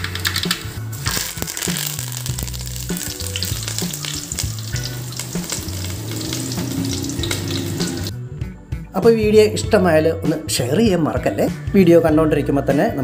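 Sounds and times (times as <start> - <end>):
leaves frying in hot oil: 0.0 - 8.1
oil crackling and popping: 0.0 - 8.1.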